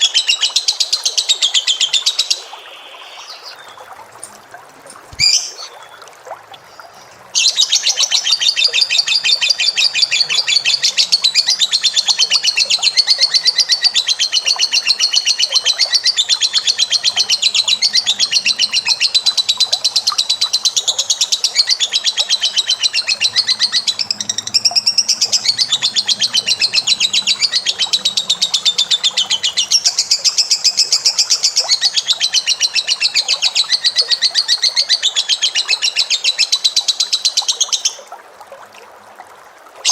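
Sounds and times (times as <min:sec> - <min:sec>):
bird singing rapid chattering notes: 0:07.4 - 0:34.3.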